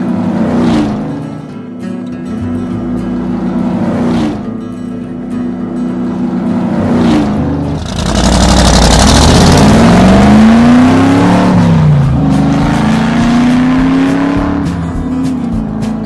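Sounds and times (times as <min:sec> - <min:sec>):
race car engine revving: 0:00.0 - 0:01.4, 0:03.2 - 0:04.6, 0:06.0 - 0:15.8.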